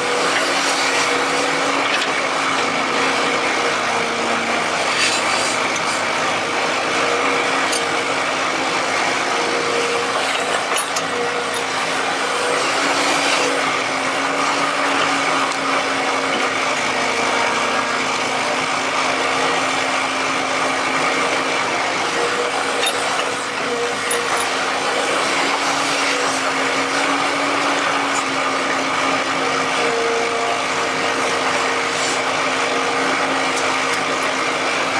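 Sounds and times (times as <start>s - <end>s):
excavator running: 0.0s - 34.9s.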